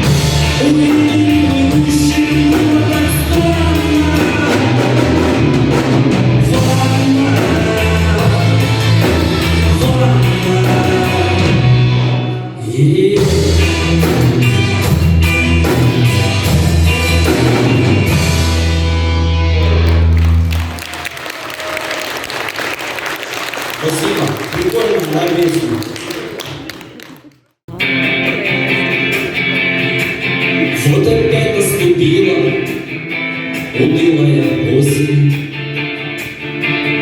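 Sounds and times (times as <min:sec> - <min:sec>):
live band playing: 0:00.0 - 0:37.0
applause: 0:19.6 - 0:27.6.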